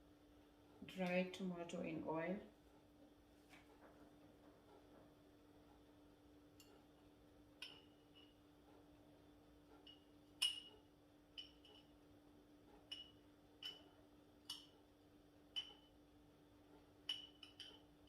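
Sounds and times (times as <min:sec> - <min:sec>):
faint steady hum: 0:00.0 - 0:18.0
utensil clinking against glass: 0:09.9 - 0:10.7, 0:17.1 - 0:17.8.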